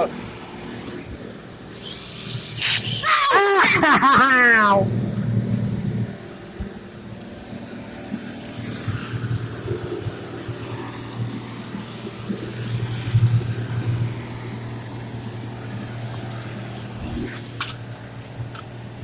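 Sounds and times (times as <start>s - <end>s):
brief high hiss: 1.8s - 3.1s
low motor hum: 4.6s - 19.0s.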